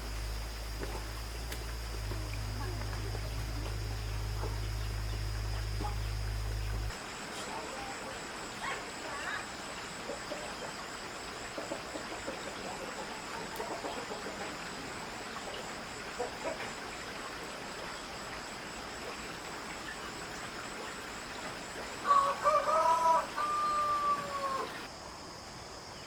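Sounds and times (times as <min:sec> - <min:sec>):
faint hiss: 0:00.0 - 0:26.0
insects trilling: 0:00.0 - 0:26.0
rooster crowing: 0:22.0 - 0:24.9.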